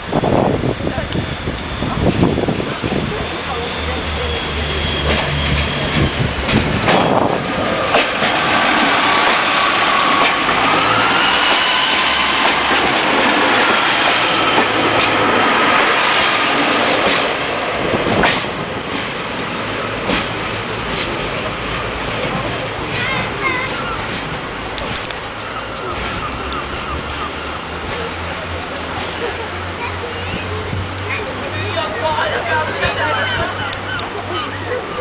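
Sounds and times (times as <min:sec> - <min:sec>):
train wheels clattering: 0:02.1 - 0:27.2.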